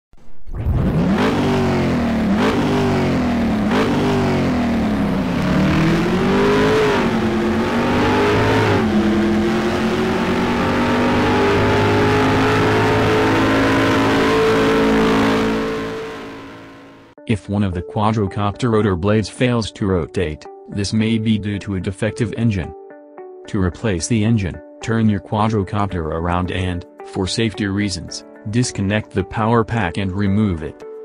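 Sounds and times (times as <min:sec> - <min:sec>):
race car engine revving: 0:00.5 - 0:17.1.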